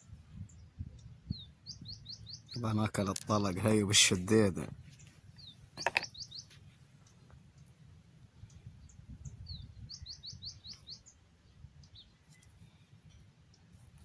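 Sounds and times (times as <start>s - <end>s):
small bird chirping: 0.0s - 2.7s, 4.9s - 7.8s, 8.4s - 13.8s.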